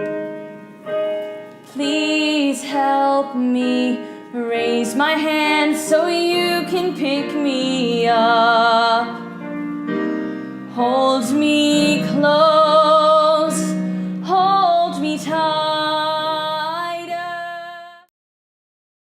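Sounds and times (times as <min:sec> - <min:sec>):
instrumental accompaniment: 0:00.0 - 0:18.0
woman singing: 0:01.7 - 0:09.4, 0:10.7 - 0:18.1.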